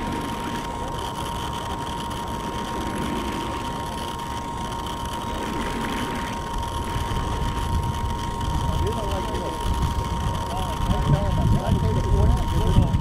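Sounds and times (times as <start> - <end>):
model boat motor whining: 0.0 - 13.0
wind rumble on microphone: 6.8 - 13.0.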